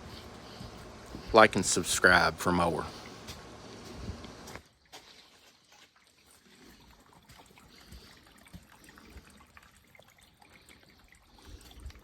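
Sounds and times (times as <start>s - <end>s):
water trickling: 4.7s - 12.0s
water dripping: 5.0s - 12.0s.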